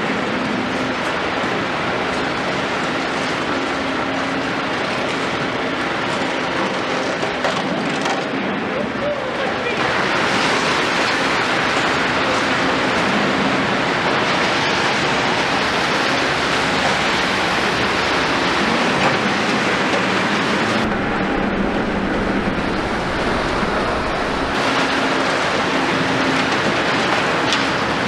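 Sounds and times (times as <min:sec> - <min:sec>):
excavator diesel engine running: 0:00.0 - 0:28.0
rain hissing: 0:09.8 - 0:27.4.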